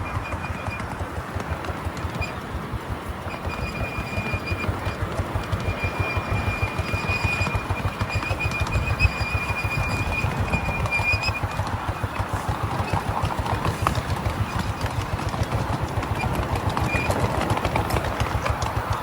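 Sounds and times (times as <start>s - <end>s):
miniature train clattering on track: 0.0s - 19.0s
thin high squeal: 3.5s - 14.7s.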